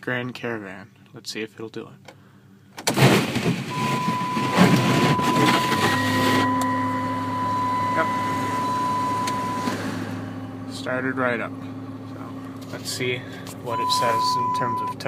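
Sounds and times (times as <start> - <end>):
car engine starting and idling: 2.5 - 15.0
thin steady warning tone: 3.7 - 9.8, 13.6 - 15.0.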